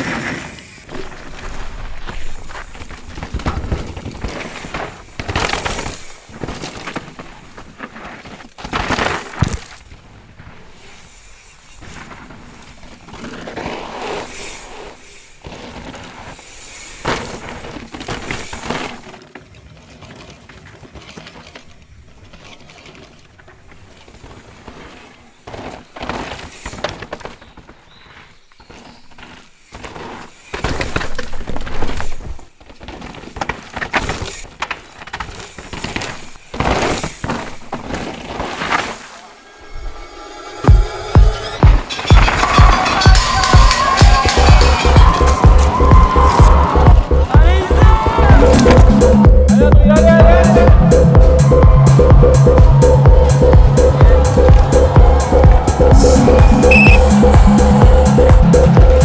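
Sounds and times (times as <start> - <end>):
tyres crunching over dirt and rock: 0.0 - 49.0
bike knocks and clatters: 0.9 - 19.3, 20.1 - 39.0, 40.6 - 47.1.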